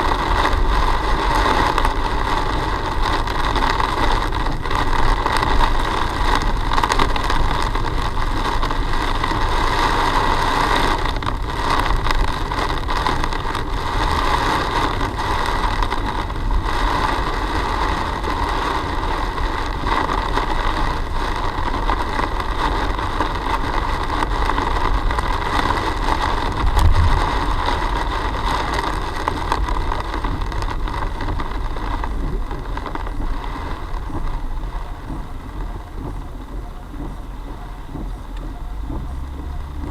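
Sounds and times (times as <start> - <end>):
car engine and road noise: 0.0 - 39.9
constant hiss: 0.0 - 39.9
low bump: 26.4 - 29.6.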